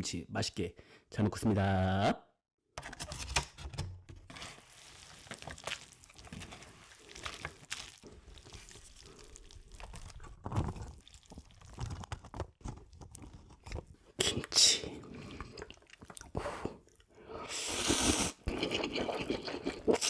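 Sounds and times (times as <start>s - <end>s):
wet food being handled: 4.3s - 14.0s.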